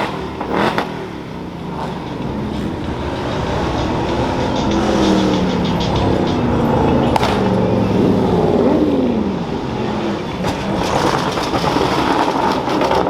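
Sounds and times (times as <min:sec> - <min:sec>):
car engine and exhaust: 0:00.0 - 0:13.0
sharp click: 0:03.7 - 0:07.8.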